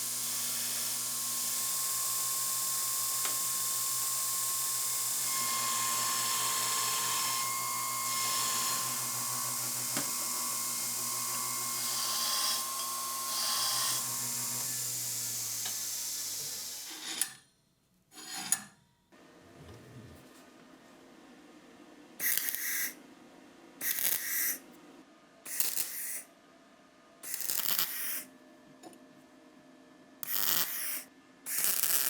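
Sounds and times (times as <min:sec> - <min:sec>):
small power tool running: 0:00.0 - 0:17.3, 0:30.2 - 0:32.0.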